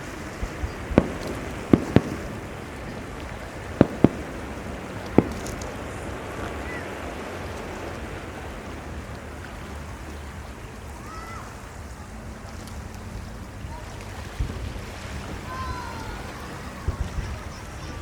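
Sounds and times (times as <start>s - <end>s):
sea surf: 0.0s - 18.0s
wind: 0.0s - 18.0s
dull firework boom: 0.4s - 6.6s.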